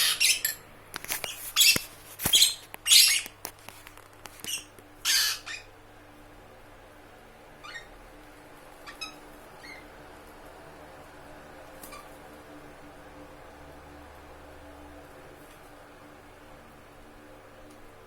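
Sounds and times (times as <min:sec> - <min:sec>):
lovebirds squawking: 0:00.0 - 0:00.6, 0:01.5 - 0:03.4, 0:04.5 - 0:05.8, 0:08.8 - 0:09.9.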